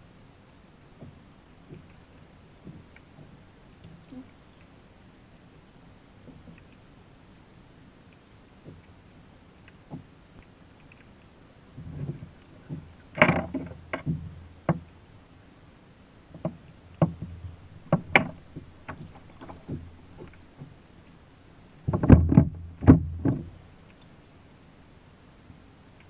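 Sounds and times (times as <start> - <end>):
thumps on plastic kayak hull: 16.4 - 19.9, 21.9 - 23.5.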